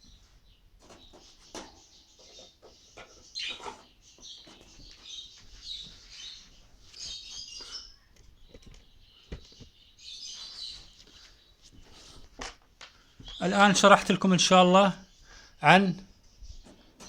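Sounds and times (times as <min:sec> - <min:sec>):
parrots chirping: 0:01.1 - 0:08.5.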